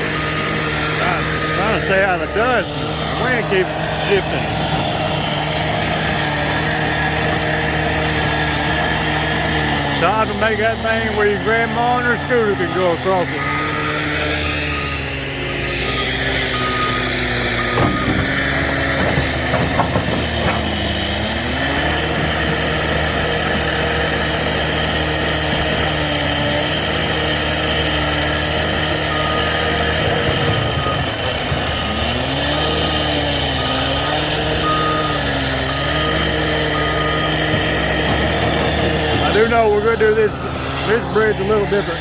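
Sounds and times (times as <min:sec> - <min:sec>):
diesel engine under load: 0:00.0 - 0:42.0
backup alarm beeping: 0:15.7 - 0:20.6, 0:29.0 - 0:39.4.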